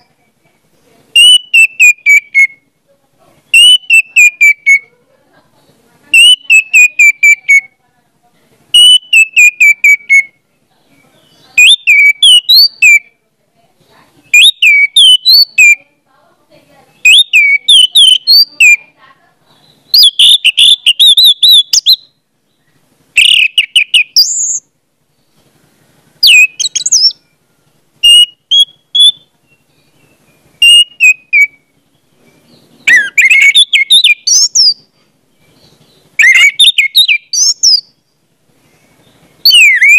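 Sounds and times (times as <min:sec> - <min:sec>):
bird chirping and whistling: 0:01.2 - 0:02.6, 0:03.5 - 0:04.8, 0:06.1 - 0:07.7, 0:08.8 - 0:10.3, 0:11.2 - 0:13.1, 0:14.3 - 0:15.8, 0:17.0 - 0:18.8, 0:19.8 - 0:22.1, 0:23.2 - 0:24.6, 0:26.2 - 0:27.2, 0:28.0 - 0:31.7, 0:32.5 - 0:34.8, 0:35.5 - 0:37.9, 0:39.4 - 0:39.9.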